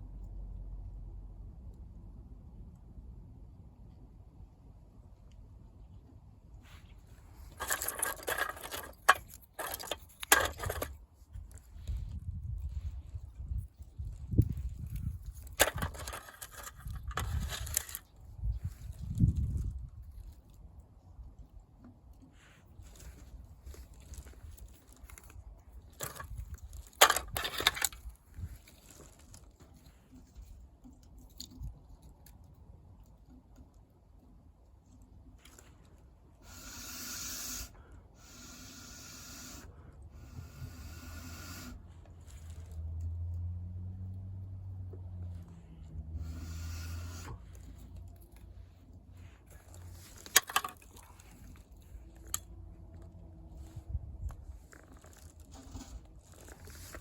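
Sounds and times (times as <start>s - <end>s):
crunching rustling handling noises: 6.5s - 36.4s, 41.9s - 43.2s, 47.4s - 57.0s.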